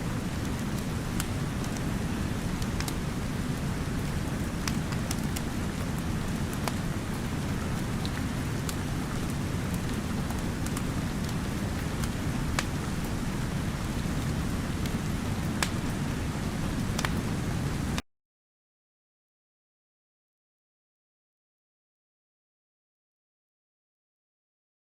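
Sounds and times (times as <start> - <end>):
wood fire crackling: 0.0 - 17.9
heavy rain with deep rumble: 0.0 - 18.0.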